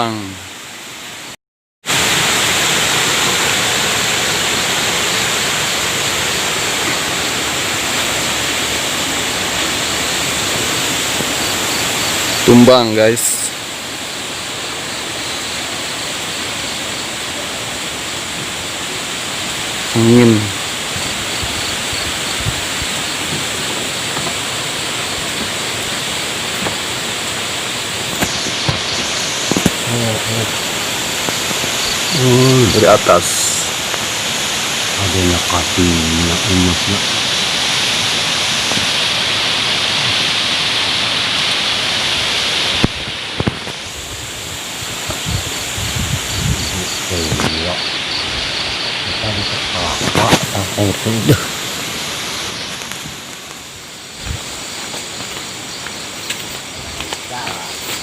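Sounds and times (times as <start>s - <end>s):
windstorm rushing: 19.4s - 33.9s, 42.6s - 53.4s, 54.1s - 54.8s.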